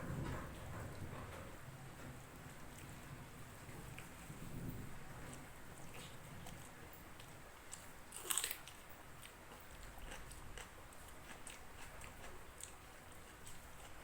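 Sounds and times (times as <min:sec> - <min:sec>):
person chewing crunchy food: 0:05.3 - 0:14.0.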